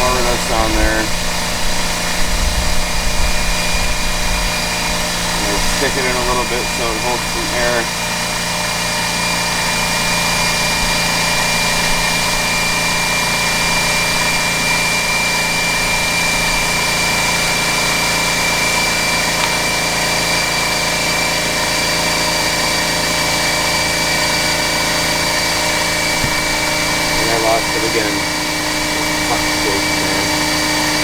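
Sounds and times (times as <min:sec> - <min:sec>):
air compressor running: 0:00.0 - 0:31.0.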